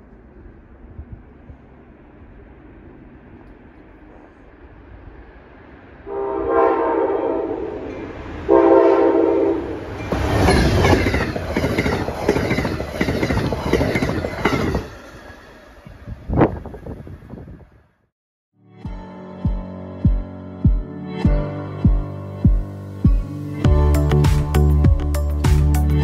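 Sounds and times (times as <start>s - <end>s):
train horn blasts: 6.1s - 11.0s
train wheels clattering: 10.0s - 15.9s.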